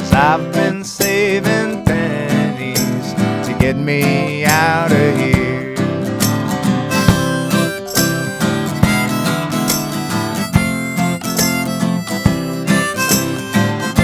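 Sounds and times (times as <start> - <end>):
acoustic guitar: 0.0 - 14.0
harmonica: 6.2 - 14.0.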